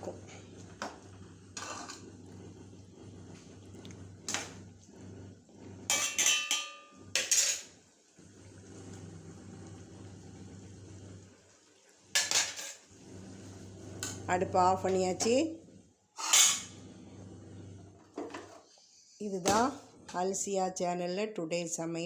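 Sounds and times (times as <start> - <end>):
metal utensils scraping pot: 1.5 - 2.1, 5.9 - 7.8, 12.2 - 12.8, 16.2 - 16.9.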